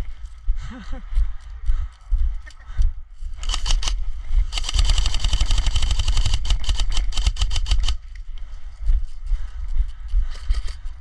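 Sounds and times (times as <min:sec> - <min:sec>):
airsoft gun firing bursts: 0:03.5 - 0:08.0.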